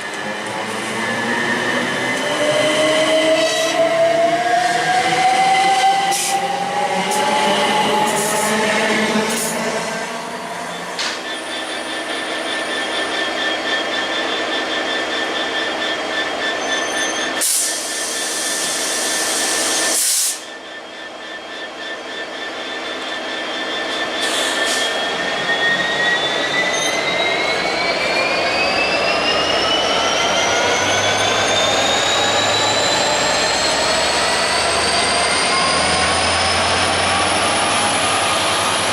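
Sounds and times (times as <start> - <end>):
loud rushes of noise: 0.0 - 16.6.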